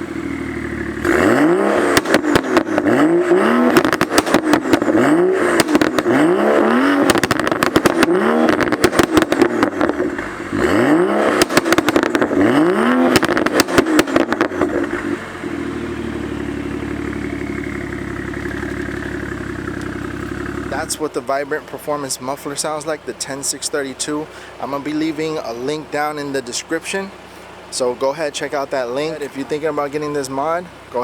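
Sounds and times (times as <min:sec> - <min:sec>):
exhaust crackling pops: 0:00.0 - 0:23.7
car engine revving and idling: 0:00.0 - 0:31.0.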